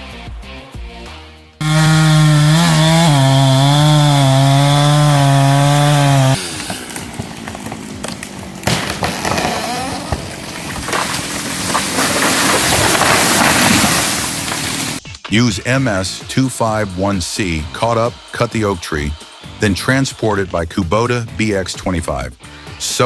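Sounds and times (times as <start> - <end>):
music: 0.0 - 1.6, 15.0 - 23.0
chainsaw running: 1.6 - 15.0, 16.7 - 20.0.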